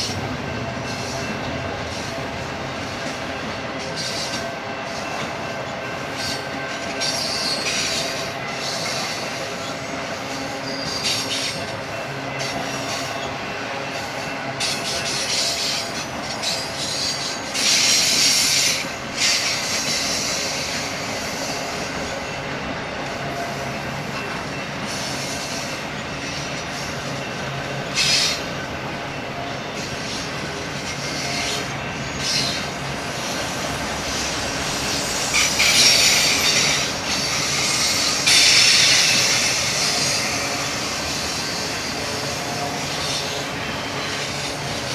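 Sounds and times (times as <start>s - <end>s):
train cars rumbling on rails: 0.0s - 44.9s
wheel squeal: 6.2s - 11.7s, 23.3s - 44.9s.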